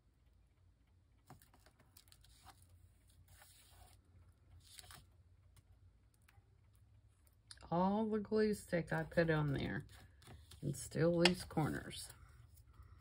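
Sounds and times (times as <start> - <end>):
paper rustling: 1.2 - 5.7, 9.0 - 13.0.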